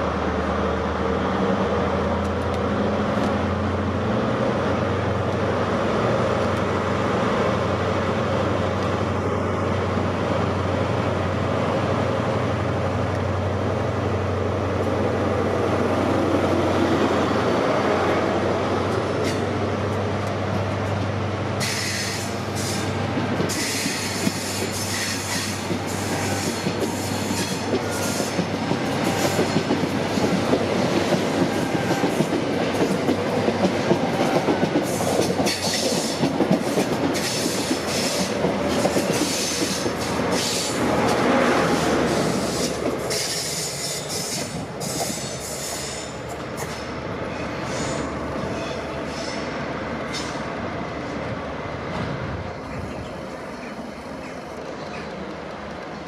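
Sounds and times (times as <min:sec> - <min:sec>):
train wheels clicking over rail joints: 0:18.8 - 0:49.5.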